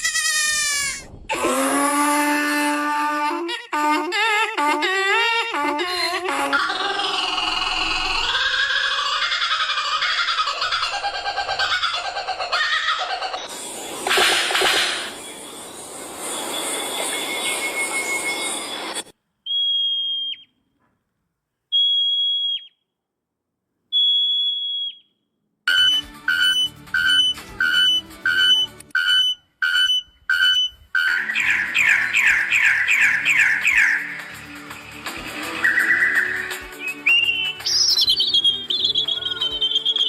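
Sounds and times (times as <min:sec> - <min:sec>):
buzzy high-pitched sound: 0:13.4 - 0:19.1
high whistled notes: 0:13.4 - 0:20.5, 0:25.7 - 0:40.0
two-pitch beeping: 0:25.7 - 0:31.2.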